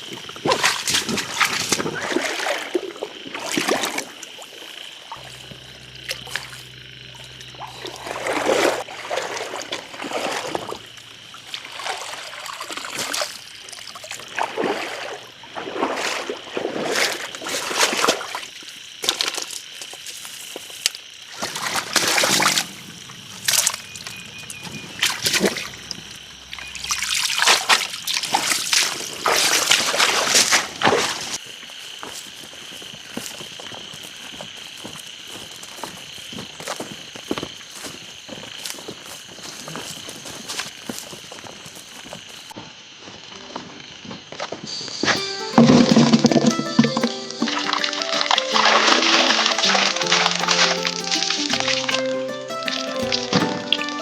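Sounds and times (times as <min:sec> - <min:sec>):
water splashing and trickling: 0:00.0 - 0:20.0, 0:20.7 - 0:31.4, 0:45.2 - 0:54.0.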